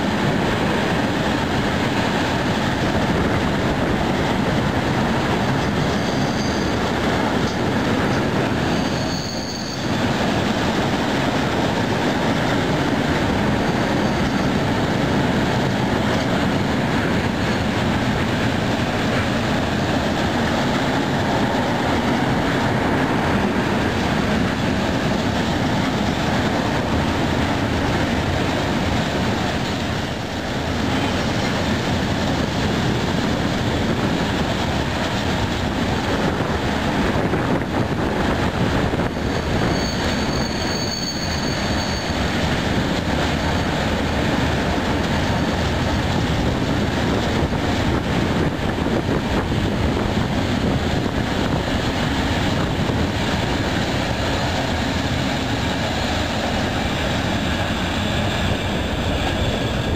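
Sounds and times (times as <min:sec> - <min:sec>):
train wheels rumbling on rail: 0:00.0 - 0:59.9
high-pitched wheel squeal: 0:05.8 - 0:06.8, 0:08.6 - 0:10.0, 0:39.1 - 0:42.3.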